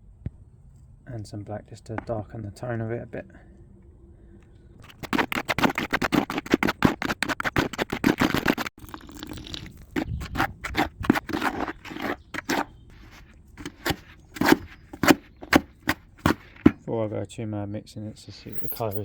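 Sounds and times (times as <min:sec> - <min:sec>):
tool scraping through adhesive mix: 0:04.8 - 0:16.8.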